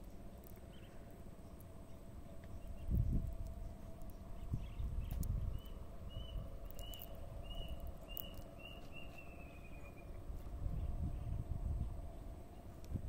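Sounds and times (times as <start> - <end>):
low wind rumble: 0.0 - 13.0
small animal chirping: 4.0 - 10.1.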